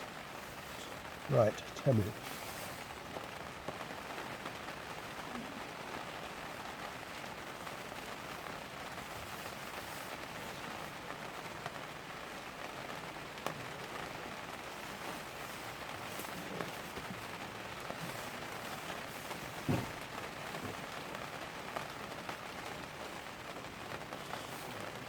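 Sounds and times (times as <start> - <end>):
rain on plastic sheeting: 0.0 - 25.0
faint taps: 19.6 - 20.8.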